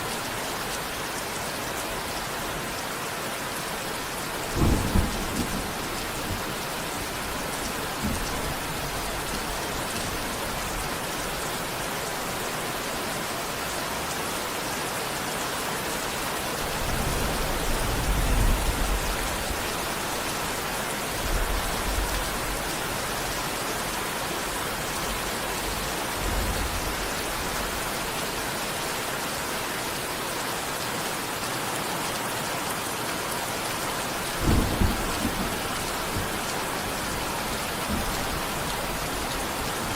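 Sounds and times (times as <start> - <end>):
steady rain: 0.0 - 39.9
thunder rolling: 4.4 - 10.8, 34.1 - 39.9.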